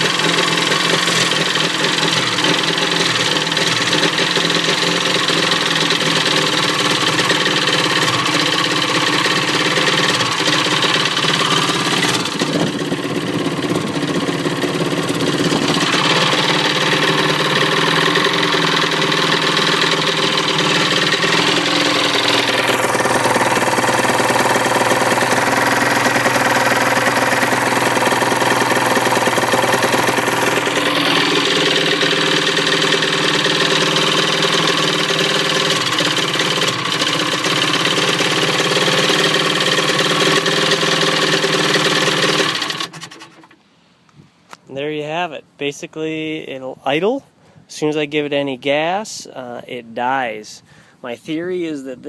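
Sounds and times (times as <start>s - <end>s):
two-stroke engine idling: 0.0s - 43.6s.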